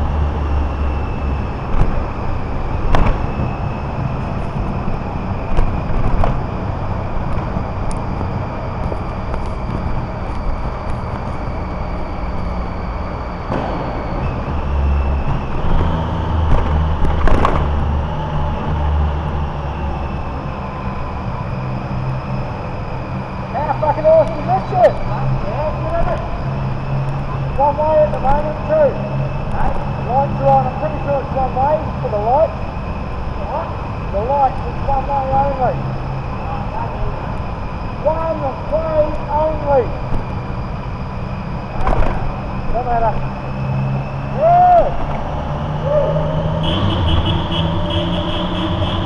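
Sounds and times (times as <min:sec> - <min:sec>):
car engine and tyres rumbling: 0:00.0 - 0:49.0
faint high whine: 0:00.0 - 0:49.0.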